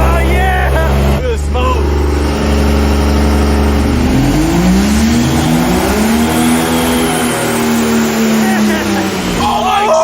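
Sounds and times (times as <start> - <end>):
diesel engine revving: 0.0 - 10.0
turbochargers spinning: 0.0 - 10.0.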